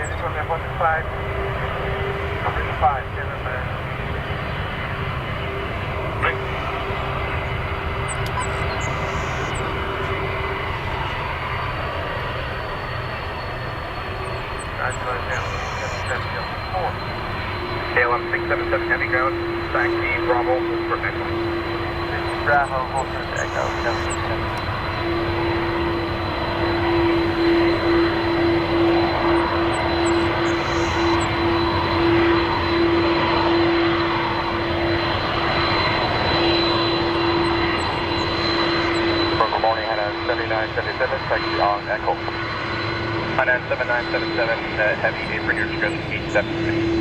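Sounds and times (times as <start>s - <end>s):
aircraft engines rushing: 0.0s - 47.0s
thin high whine: 6.2s - 34.7s.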